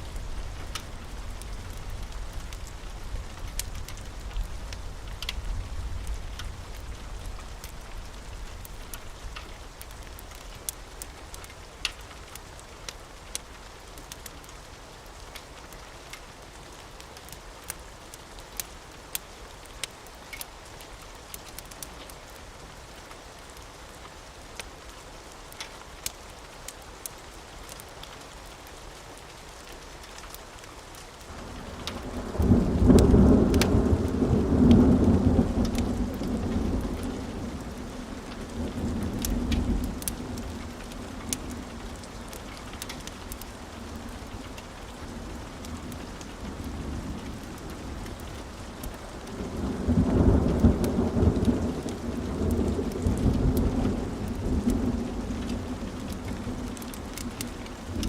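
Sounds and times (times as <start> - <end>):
steady rain falling: 0.0 - 58.0
thunder rumbling: 31.3 - 58.0.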